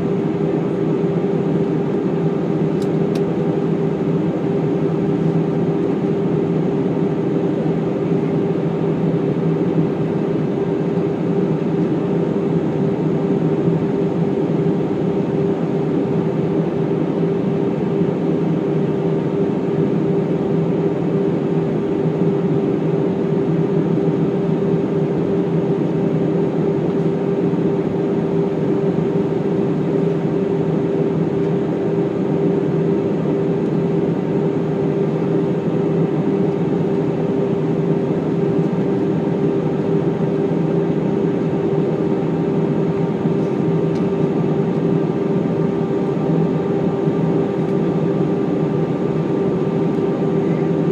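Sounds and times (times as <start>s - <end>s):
airliner engines rumbling in flight: 0.0s - 50.9s.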